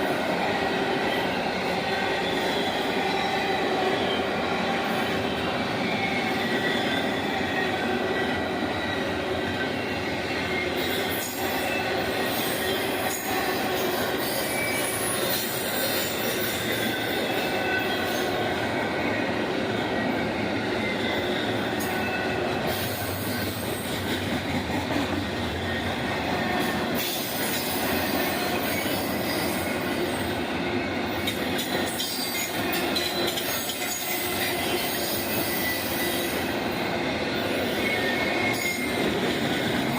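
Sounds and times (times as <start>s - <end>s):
railroad cars rumbling: 0.0s - 39.9s
rail clicks: 20.8s - 39.9s.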